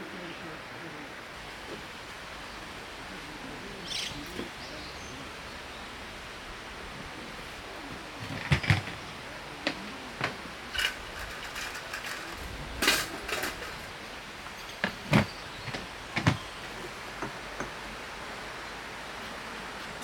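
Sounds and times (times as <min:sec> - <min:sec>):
steady background hiss: 0:00.0 - 0:20.0
hard objects knocking and clattering: 0:08.2 - 0:09.1, 0:14.5 - 0:17.8.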